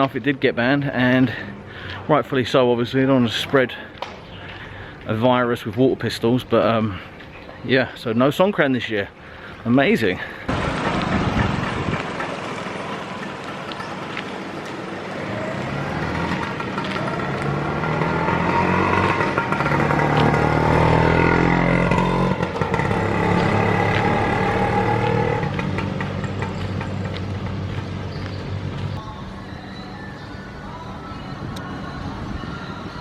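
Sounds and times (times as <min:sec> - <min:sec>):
street noise: 0:00.0 - 0:33.0
vehicle engine passing: 0:10.5 - 0:29.0.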